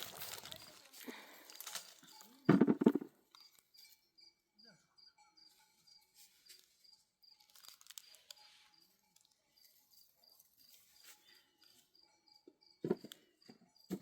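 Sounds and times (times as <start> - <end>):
cricket chirping: 0.0 - 14.0.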